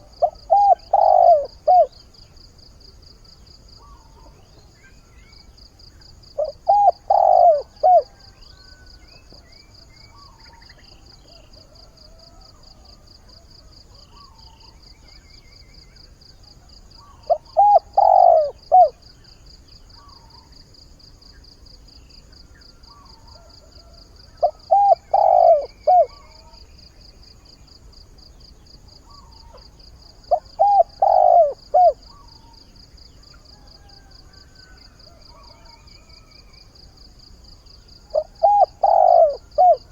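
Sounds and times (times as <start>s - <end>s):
dove cooing: 0.0s - 2.0s, 6.4s - 8.3s, 17.0s - 19.0s, 22.9s - 26.6s, 29.1s - 32.6s, 38.0s - 39.9s.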